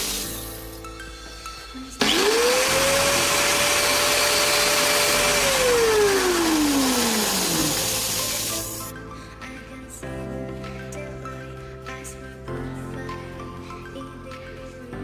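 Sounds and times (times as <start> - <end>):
power tool motor whine: 2.0 - 8.9.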